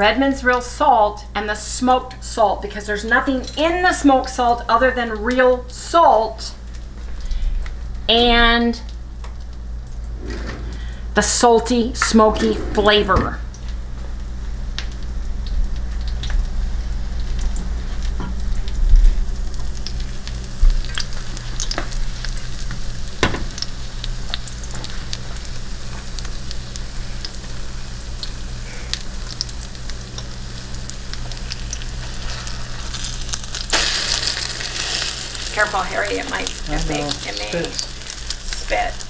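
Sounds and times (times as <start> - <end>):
low hum: 9.8 - 16.2
low thumps: 12.0 - 13.6
bread sizzling in a skillet: 13.7 - 39.0.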